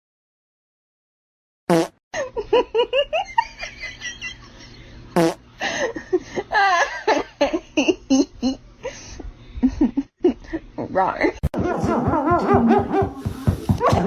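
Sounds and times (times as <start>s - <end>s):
person laughing: 11.5s - 14.0s.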